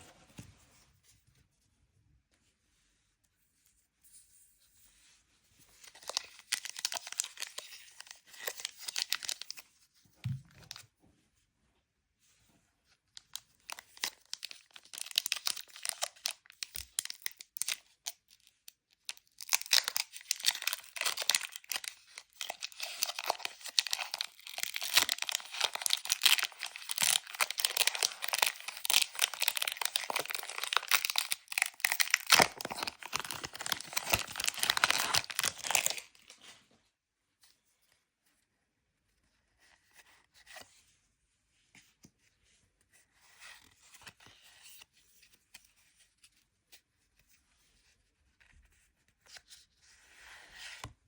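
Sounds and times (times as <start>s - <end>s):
crinkly packaging being torn: 5.8s - 9.6s, 13.2s - 36.4s.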